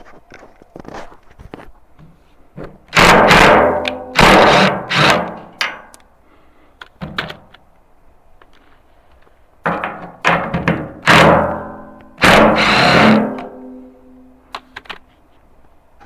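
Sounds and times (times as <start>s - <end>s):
heavy ringing knocks: 3.0s - 6.0s, 9.7s - 14.4s.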